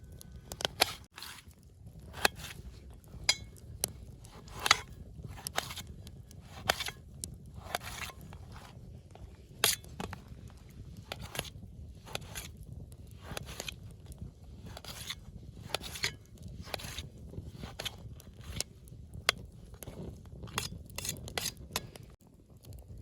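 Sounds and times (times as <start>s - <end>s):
knife cutting onions: 4.3s - 5.9s, 6.5s - 7.0s, 14.7s - 17.0s.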